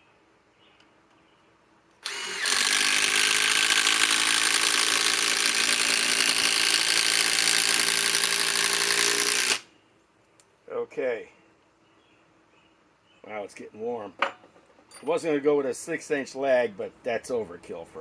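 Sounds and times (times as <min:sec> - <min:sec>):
impact driver hammering: 0:02.0 - 0:09.6.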